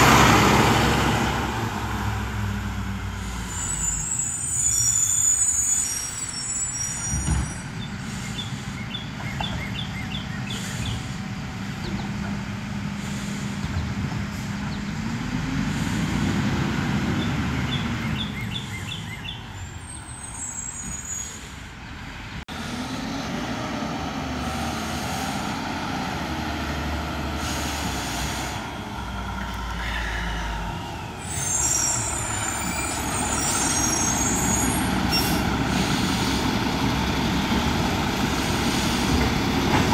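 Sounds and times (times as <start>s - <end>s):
garbage truck engine revving: 0.0s - 4.4s, 10.1s - 18.4s, 22.5s - 39.9s
air brakes hissing: 3.0s - 9.0s, 9.7s - 12.0s, 12.9s - 14.7s, 20.2s - 21.8s, 29.6s - 37.4s, 38.2s - 39.9s.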